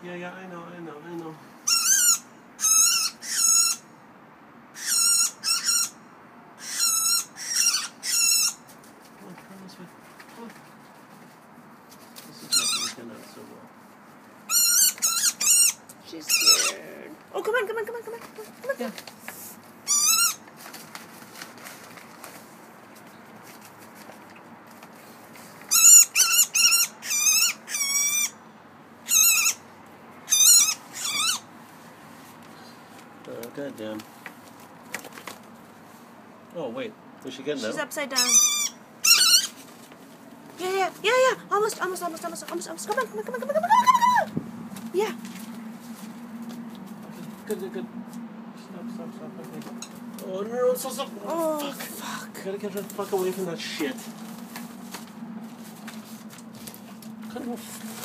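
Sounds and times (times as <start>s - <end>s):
bird calling loudly: 1.6s - 4.0s, 4.7s - 8.8s, 12.4s - 13.1s, 14.4s - 19.0s, 19.8s - 20.5s, 25.7s - 31.6s, 37.6s - 39.7s, 40.6s - 48.3s, 49.4s - 52.4s.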